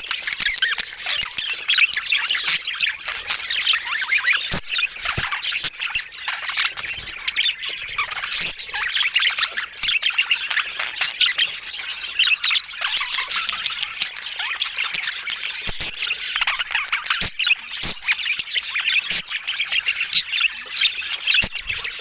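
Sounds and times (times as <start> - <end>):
budgerigars chirping and squawking: 0.0 - 22.0.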